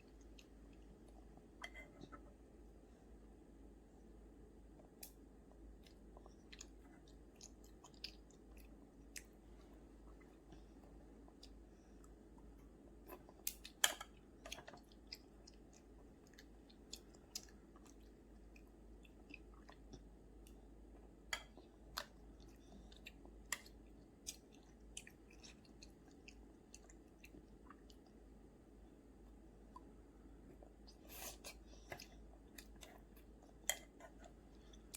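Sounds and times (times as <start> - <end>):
child chewing food: 0.0 - 2.8, 4.1 - 34.9.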